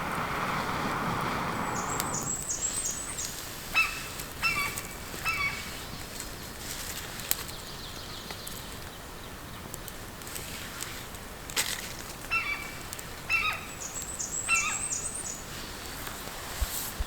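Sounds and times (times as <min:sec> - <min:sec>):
rush of noise: 0:00.0 - 0:02.7
forest birds calling: 0:01.0 - 0:06.4, 0:12.2 - 0:15.8.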